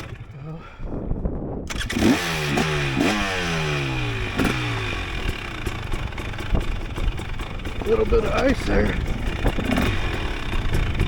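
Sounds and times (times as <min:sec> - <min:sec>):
dirt bike engine revving: 0:00.0 - 0:00.8, 0:01.6 - 0:11.0
wind on microphone: 0:00.0 - 0:04.8, 0:05.9 - 0:11.0
bike knocking and clattering: 0:05.2 - 0:11.0.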